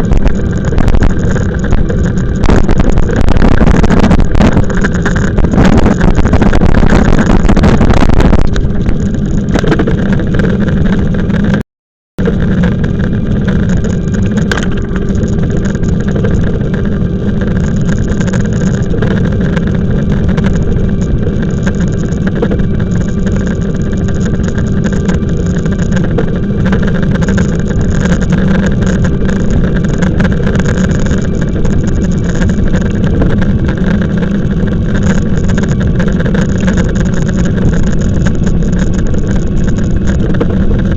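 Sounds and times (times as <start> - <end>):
faint steady whine: 0.0 - 11.6, 12.2 - 40.9
wind buffeting microphone: 0.0 - 11.6, 12.2 - 40.9
steady riding rumble: 0.0 - 40.9.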